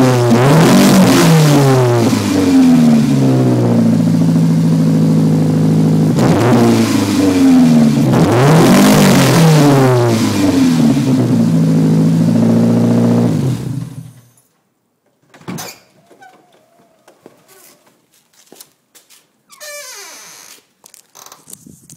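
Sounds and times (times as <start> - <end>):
car exhaust idling and revving: 0.0 - 14.3.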